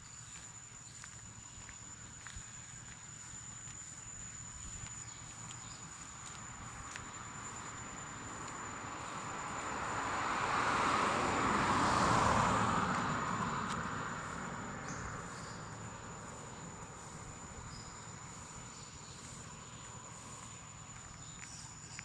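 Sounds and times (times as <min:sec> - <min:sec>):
vehicle passing by: 0:08.1 - 0:18.3.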